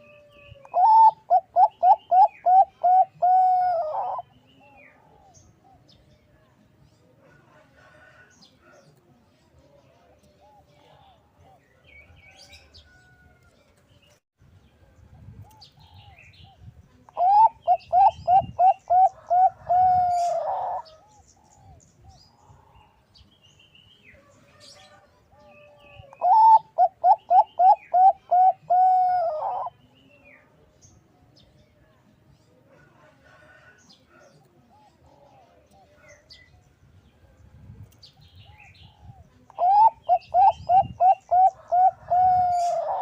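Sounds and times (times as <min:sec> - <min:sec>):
dove cooing: 0:00.0 - 0:06.0, 0:17.2 - 0:21.8, 0:24.8 - 0:29.8, 0:38.4 - 0:43.0.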